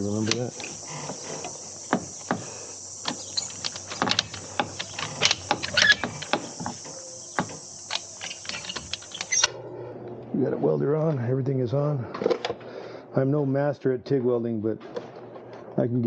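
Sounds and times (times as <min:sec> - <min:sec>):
faint steady hiss: 0:00.0 - 0:09.5
hand tools and metal clicking: 0:00.0 - 0:09.5.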